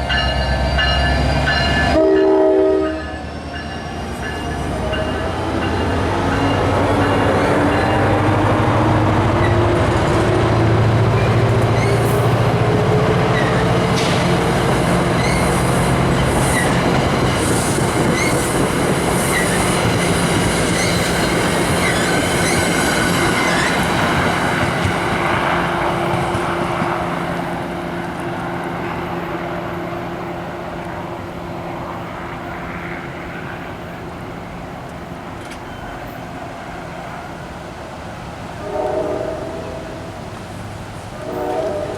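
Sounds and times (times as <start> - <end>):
train wheels squealing and clicking: 11.1 - 12.5, 13.3 - 25.0.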